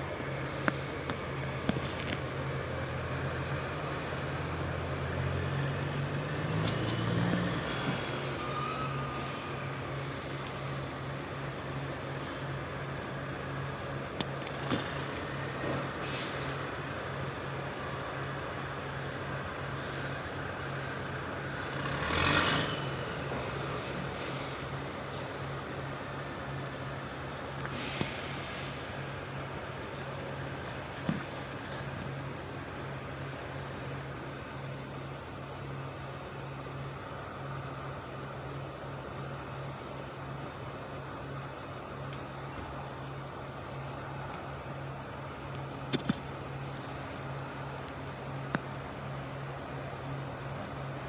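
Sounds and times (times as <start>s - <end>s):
truck engine running: 0.0s - 51.0s
burst of hiss: 16.0s - 16.7s, 27.2s - 29.3s.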